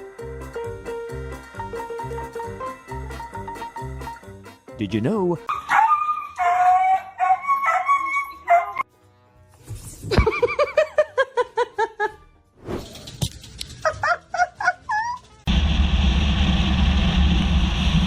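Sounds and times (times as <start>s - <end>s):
dog yipping: 5.5s - 8.8s, 13.7s - 15.4s.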